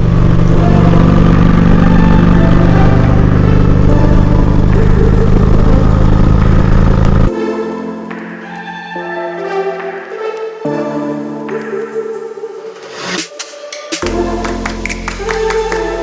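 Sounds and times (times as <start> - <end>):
motorcycle engine cruising: 0.0 - 7.3.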